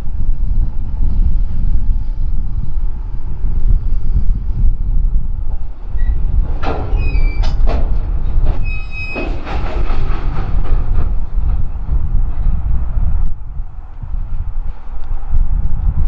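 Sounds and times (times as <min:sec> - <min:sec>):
freight train cars rolling: 0:00.0 - 0:16.0
metallic clanks: 0:05.5 - 0:12.6
high wheel squeals: 0:05.9 - 0:07.7, 0:08.6 - 0:09.5.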